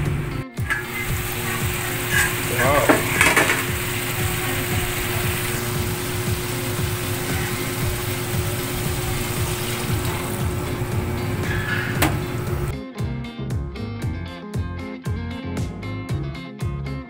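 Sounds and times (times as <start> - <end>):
chicken sizzling in a wok: 0.0 - 12.7
spatula scraping a wok: 0.7 - 5.6, 11.2 - 12.7.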